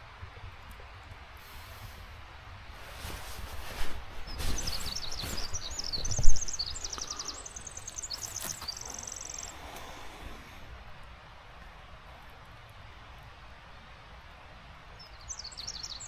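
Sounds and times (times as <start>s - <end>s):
songbird trilling and warbling: 4.3s - 9.6s, 15.0s - 16.0s.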